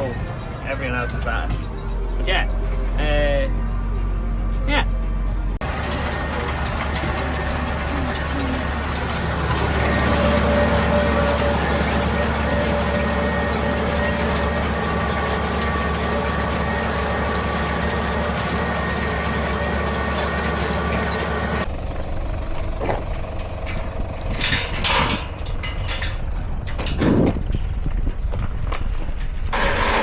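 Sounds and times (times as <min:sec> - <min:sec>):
tractor engine running: 0:00.0 - 0:30.0
knocks and rustles: 0:22.7 - 0:30.0.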